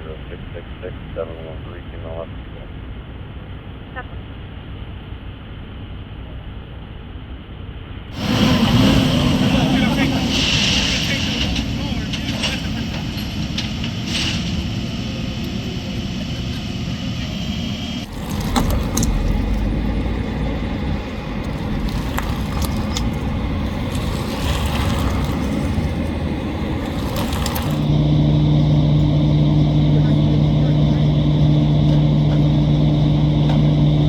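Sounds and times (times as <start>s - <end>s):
steady low hum: 0.0s - 34.0s
vehicle engines rumbling: 8.1s - 34.0s.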